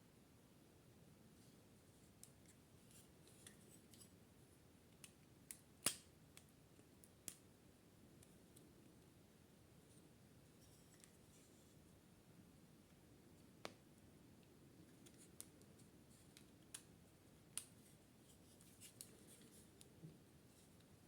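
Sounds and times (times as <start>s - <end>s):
faint small clicks and taps: 4.9s - 7.4s, 10.6s - 11.4s, 14.4s - 16.9s, 17.5s - 20.9s.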